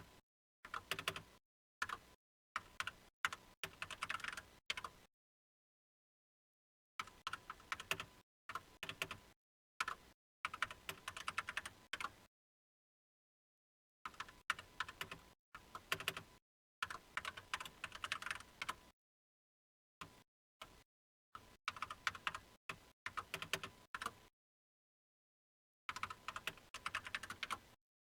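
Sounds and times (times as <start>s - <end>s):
typing on computer keyboard: 0.7s - 2.0s, 2.6s - 4.9s, 7.0s - 9.2s, 9.8s - 12.2s, 14.1s - 18.8s, 21.7s - 22.5s, 23.1s - 24.2s, 25.9s - 27.7s.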